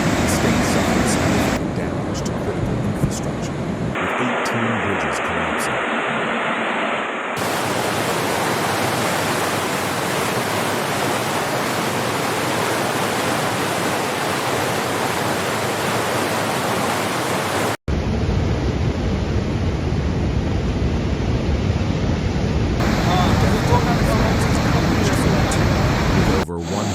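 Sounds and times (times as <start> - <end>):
rushing floodwater: 7.4 - 17.8, 22.8 - 26.4.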